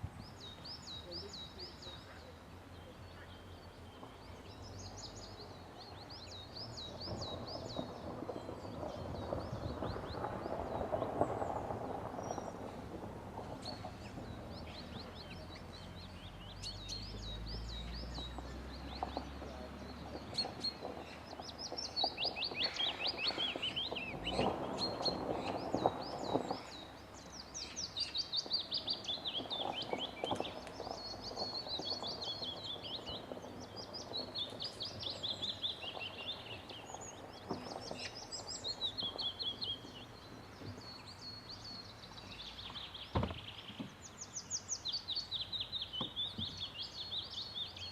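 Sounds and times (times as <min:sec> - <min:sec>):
songbirds singing: 0:00.0 - 0:47.9.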